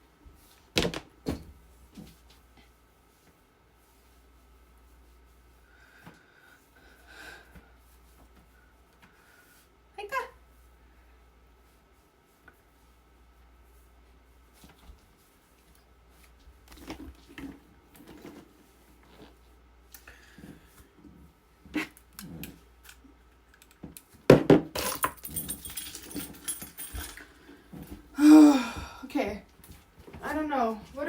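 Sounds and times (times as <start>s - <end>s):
loud jangling rattle: 24.8s - 27.3s.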